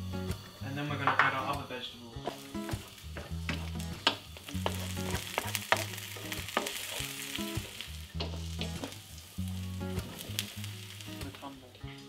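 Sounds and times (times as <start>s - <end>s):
onion sizzling in oil: 0.0s - 12.0s
wooden spoon scraping wok: 2.2s - 11.8s.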